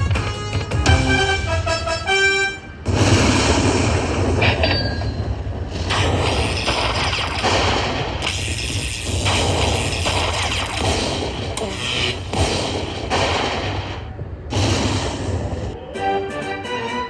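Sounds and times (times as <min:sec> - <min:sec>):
dense rumbling noise effect: 0:02.8 - 0:15.8.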